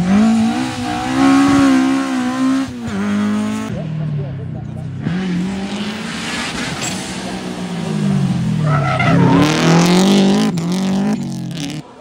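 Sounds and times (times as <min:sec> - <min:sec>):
rally car engine revving: 0:00.0 - 0:12.0
tyres skidding and squealing: 0:05.2 - 0:12.0.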